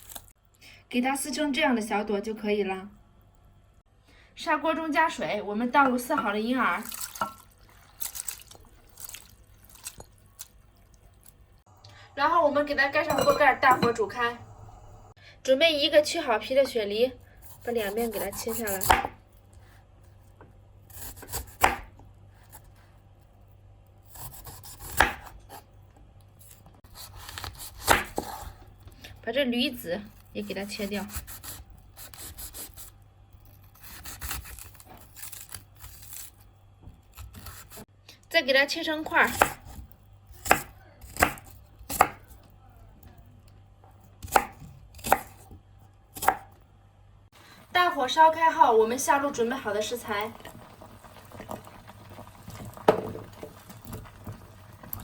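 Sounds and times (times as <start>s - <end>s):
knife chopping on board: 18.1s - 19.2s, 21.0s - 21.9s, 24.1s - 25.4s, 27.0s - 28.4s, 39.3s - 42.3s, 44.2s - 45.5s
knife slicing: 30.8s - 32.9s, 33.6s - 36.4s.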